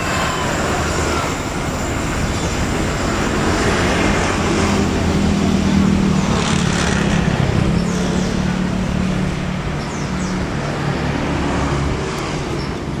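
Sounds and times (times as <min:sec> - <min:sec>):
train carriages rumbling: 0:00.0 - 0:13.0.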